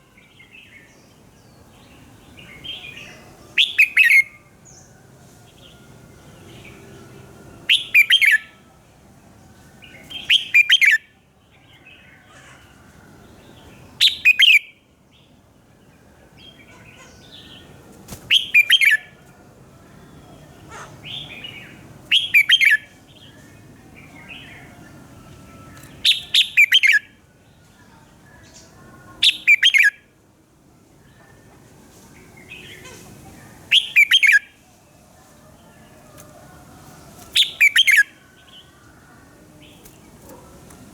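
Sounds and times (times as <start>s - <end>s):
bulbul singing bright phrases: 0.0s - 4.9s, 5.5s - 8.6s, 9.2s - 12.3s, 13.2s - 19.2s, 19.9s - 30.2s, 32.1s - 36.2s, 36.8s - 40.9s
soft bird calls: 31.1s - 40.9s.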